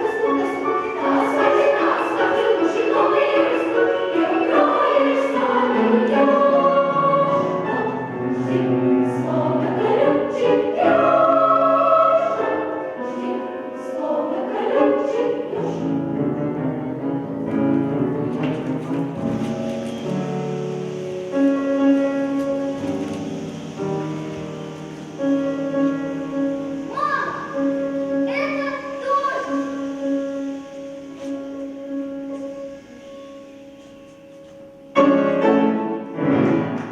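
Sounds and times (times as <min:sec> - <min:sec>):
children's choir singing: 0:00.0 - 0:36.9
instrumental accompaniment: 0:00.0 - 0:36.9.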